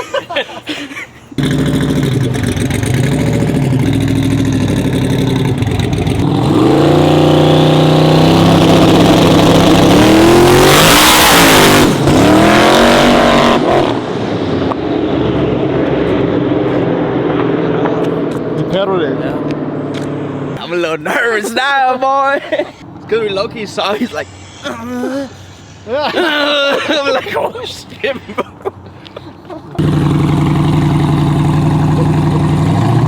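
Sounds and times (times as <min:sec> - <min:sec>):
truck engine at full throttle: 0:01.4 - 0:20.6, 0:29.7 - 0:33.0.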